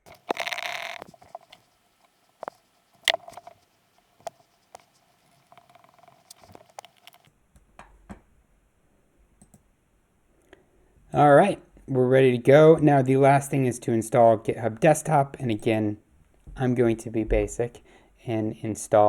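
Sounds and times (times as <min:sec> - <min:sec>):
computer mouse clicks: 0:00.0 - 0:07.3.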